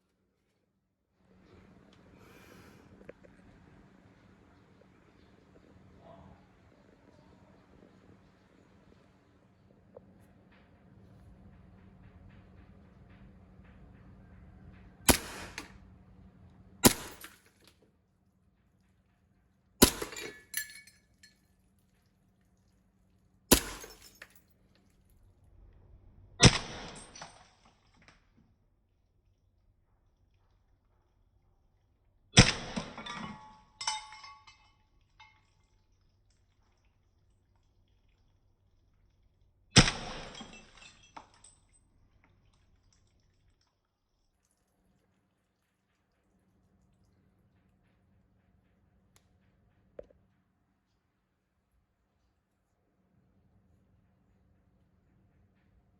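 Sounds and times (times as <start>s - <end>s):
airsoft pistol shot: 15.1s - 15.7s, 16.8s - 17.3s, 19.8s - 20.2s, 23.5s - 23.9s, 26.4s - 27.0s.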